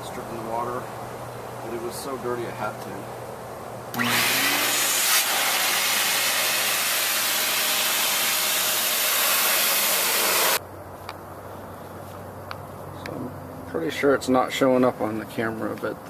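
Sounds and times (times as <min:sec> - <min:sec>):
air blower blasting: 0:03.9 - 0:10.6.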